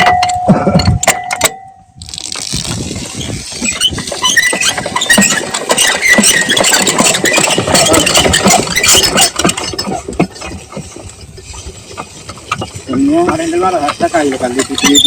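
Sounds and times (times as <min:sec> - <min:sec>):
diesel engine clattering: 0:03.9 - 0:15.0.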